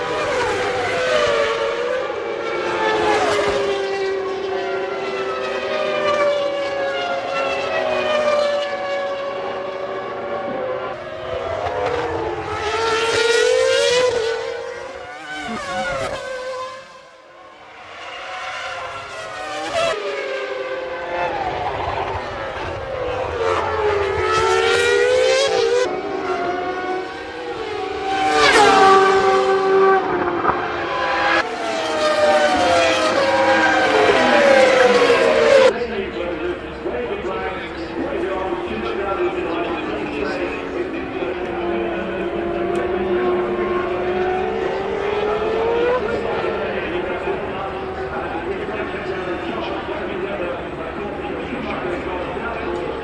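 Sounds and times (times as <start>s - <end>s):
racing car engines screaming past: 14.8s - 16.8s.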